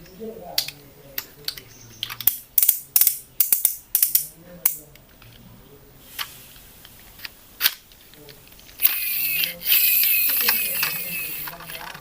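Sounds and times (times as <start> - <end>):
sharp clicks and snaps: 0.5 - 5.4.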